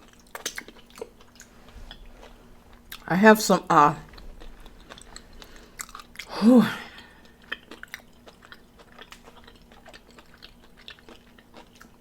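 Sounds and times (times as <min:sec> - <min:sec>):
crunchy chewing: 0:00.0 - 0:03.1, 0:04.0 - 0:06.3, 0:06.9 - 0:12.0
person humming: 0:06.3 - 0:07.1.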